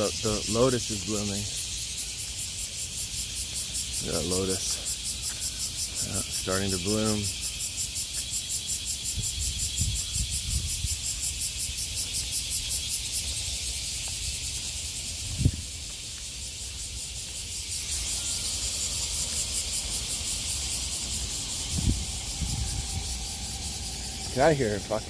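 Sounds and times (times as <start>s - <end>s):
cicadas buzzing: 0.0s - 25.0s
low rumble: 20.9s - 25.0s.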